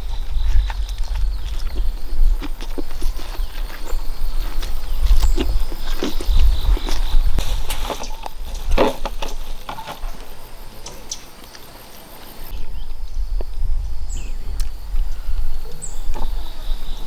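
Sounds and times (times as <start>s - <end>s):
knocks and rustles: 6.3s - 11.1s.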